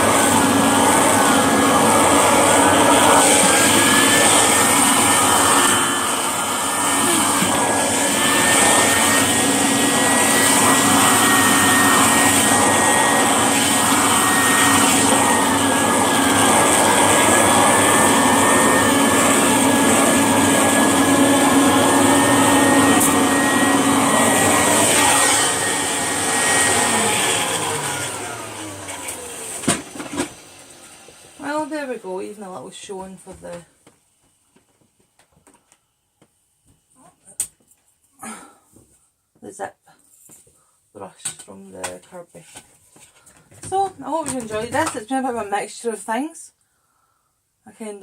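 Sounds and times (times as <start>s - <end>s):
vacuum motor winding down: 0.0s - 31.7s
vacuum cleaner running on carpet: 0.0s - 33.6s, 43.6s - 45.4s.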